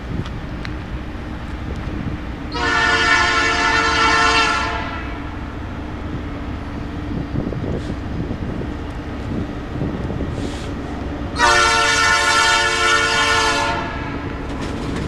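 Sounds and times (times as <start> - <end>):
locomotive air horn blast: 2.5 - 5.4, 10.4 - 14.3.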